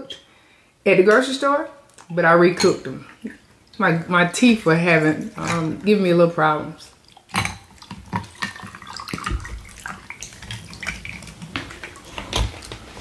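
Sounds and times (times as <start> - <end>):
wet chewing and lip-smacking: 7.0 - 12.0.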